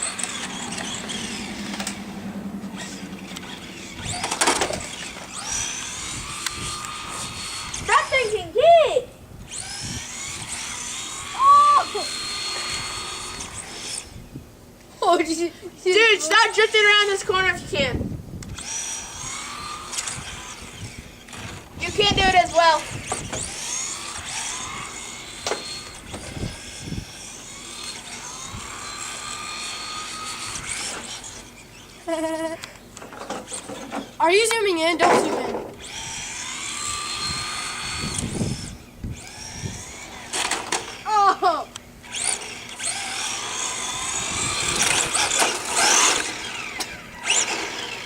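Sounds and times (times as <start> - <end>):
rush of noise: 0.0 - 5.6
electric motors whining: 0.0 - 48.0.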